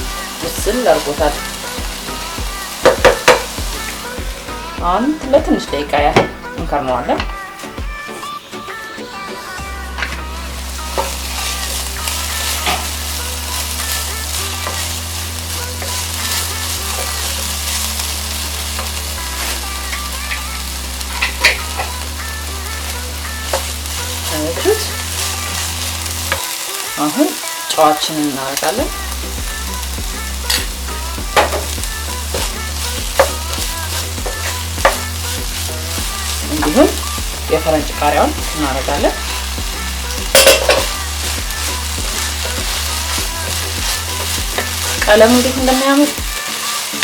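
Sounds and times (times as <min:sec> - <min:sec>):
vegetables sizzling in a pot: 0:00.0 - 0:47.0.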